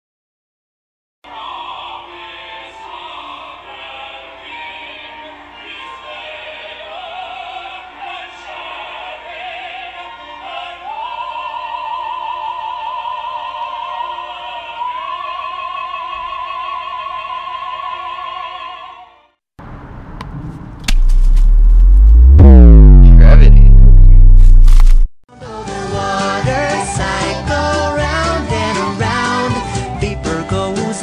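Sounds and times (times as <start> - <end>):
operatic singing: 1.3 - 19.2
loud low sound: 20.9 - 25.2.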